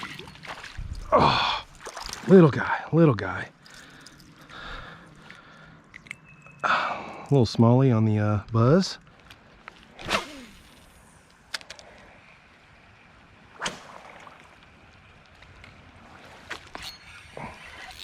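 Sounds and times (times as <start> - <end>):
quiet creek: 0.0 - 18.0
fishing rod swishing: 10.0 - 10.9.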